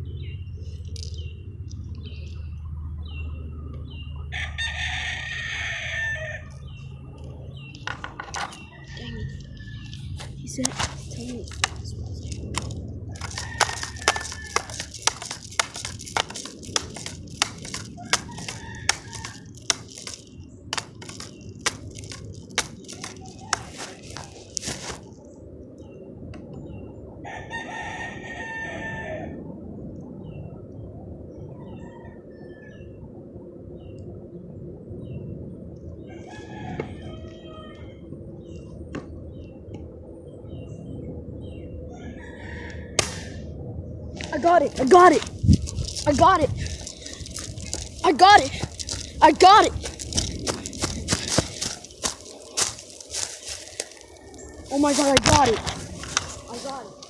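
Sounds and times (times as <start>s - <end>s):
rooster crowing: 4.3s - 6.5s, 13.1s - 15.0s, 18.0s - 19.5s, 27.2s - 29.4s, 36.0s - 38.0s, 41.9s - 43.4s
handling clicks: 10.0s - 25.0s.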